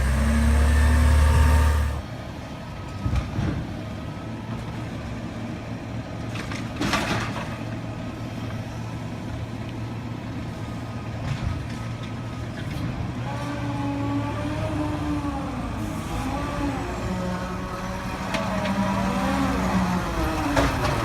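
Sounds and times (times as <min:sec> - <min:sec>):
diesel engine running: 0:00.0 - 0:13.5, 0:14.1 - 0:21.0.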